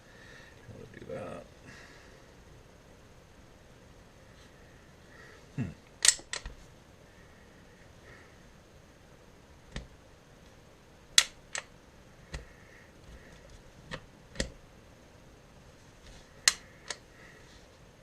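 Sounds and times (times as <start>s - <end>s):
pistol mechanical clicks: 6.0s - 6.5s, 11.2s - 11.7s.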